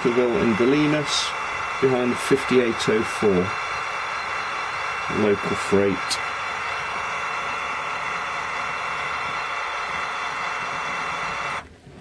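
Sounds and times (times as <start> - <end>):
model locomotive engine running: 0.0 - 11.7.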